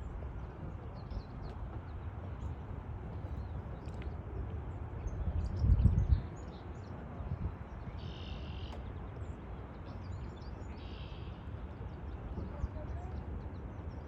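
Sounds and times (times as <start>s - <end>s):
wind rumble on microphone: 0.0s - 14.0s
faint bird chirps: 7.9s - 8.8s, 10.4s - 11.5s.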